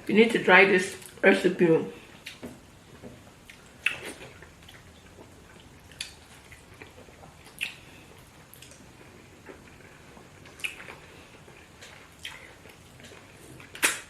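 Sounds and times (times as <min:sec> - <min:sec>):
wet eating smacks: 0:03.4 - 0:07.9, 0:10.5 - 0:11.0, 0:11.8 - 0:14.0
faint chewing clicks: 0:03.4 - 0:14.0.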